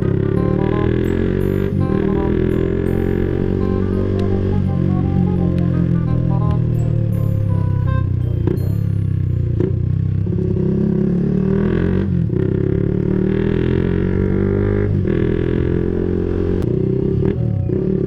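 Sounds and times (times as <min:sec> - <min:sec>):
background music: 0:00.0 - 0:09.7, 0:13.8 - 0:18.0
motorcycle engine accelerating: 0:00.0 - 0:18.0.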